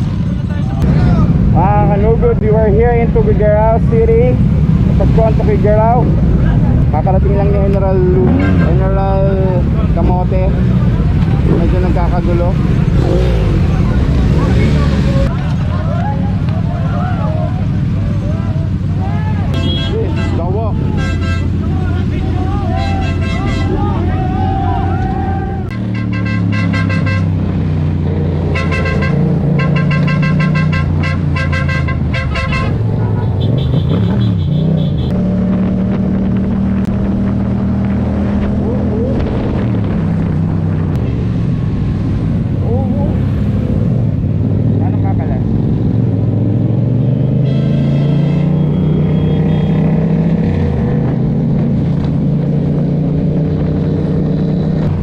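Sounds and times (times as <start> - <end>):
vehicle horn short toots: 8.3 - 8.8, 19.6 - 20.4, 21.0 - 21.6, 22.8 - 23.8, 25.7 - 27.3, 28.5 - 35.1, 47.2 - 49.9.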